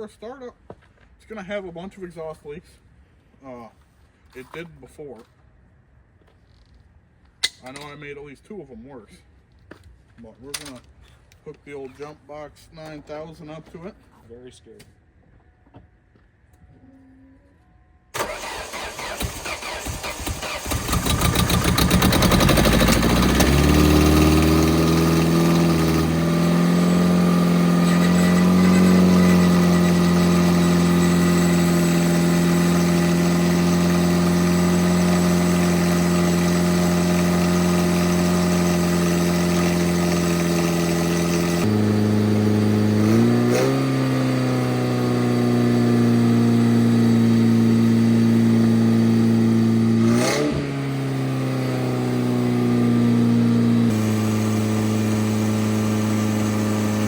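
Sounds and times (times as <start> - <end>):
car engine fast idle: 18.2 - 26.2
starter motor cranking: 18.2 - 41.9.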